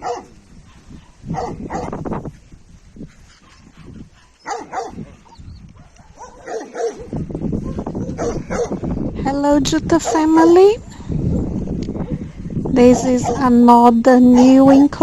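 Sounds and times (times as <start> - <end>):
dogs barking: 0.0 - 2.0, 3.3 - 8.9, 10.0 - 10.8, 12.0 - 13.6, 14.3 - 15.0.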